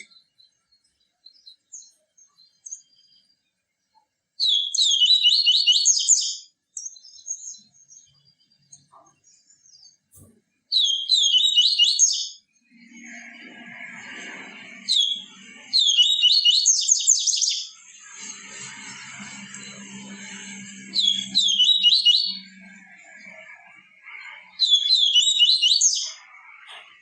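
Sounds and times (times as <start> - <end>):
bird singing rapid high notes: 0.0 - 3.3, 4.4 - 27.0
faint bird chirps: 0.0 - 20.2.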